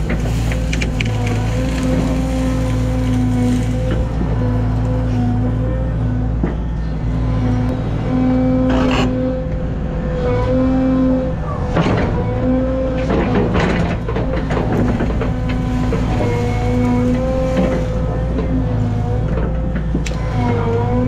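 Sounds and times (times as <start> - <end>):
excavator diesel engine droning: 0.0 - 21.0
hydraulic whine: 0.0 - 21.0
sharp knocks and cracks: 13.0 - 20.3.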